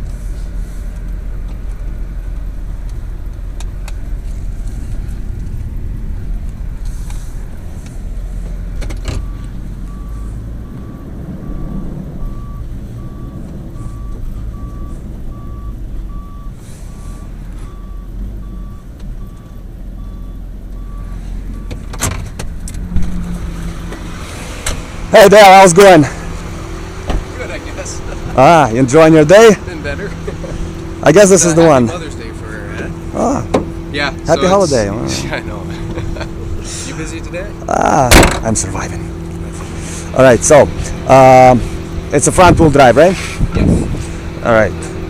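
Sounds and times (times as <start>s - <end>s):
tow truck engine rumbling: 0.0s - 45.0s
backup alarm beeping: 9.1s - 21.8s
sharp knock: 38.1s - 38.4s.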